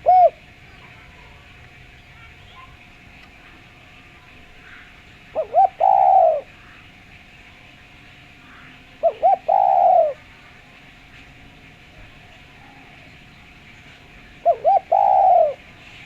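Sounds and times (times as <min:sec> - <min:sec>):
dove cooing: 0:00.0 - 0:01.5, 0:03.9 - 0:06.9, 0:08.4 - 0:10.6, 0:13.9 - 0:16.0.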